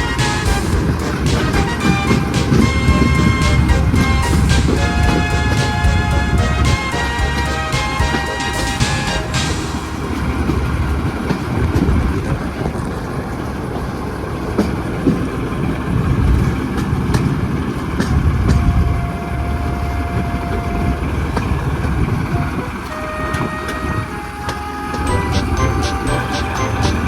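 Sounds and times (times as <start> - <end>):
locomotive rumbling: 0.0 - 27.0.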